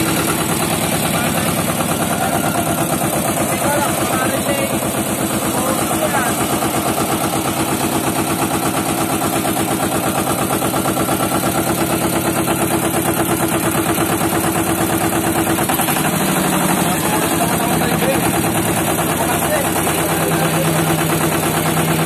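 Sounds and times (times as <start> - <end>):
road roller diesel engine running: 0.0 - 22.0.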